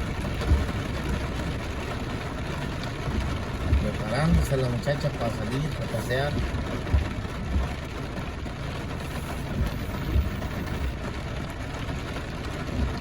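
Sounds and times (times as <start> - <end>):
low thumps: 0.0 - 1.3, 3.1 - 4.6, 6.4 - 7.8, 9.4 - 10.9
steady rain falling: 0.0 - 13.0.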